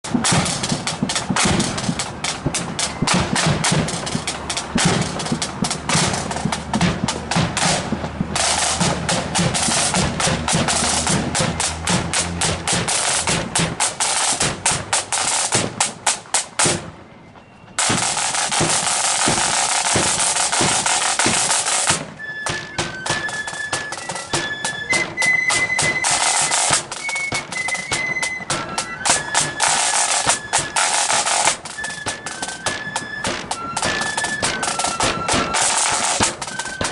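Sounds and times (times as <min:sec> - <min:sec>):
snare drums rolling: 0:00.0 - 0:17.2, 0:17.8 - 0:36.9
bass drum beats: 0:00.1 - 0:17.0
flutes playing melody: 0:00.1 - 0:36.9.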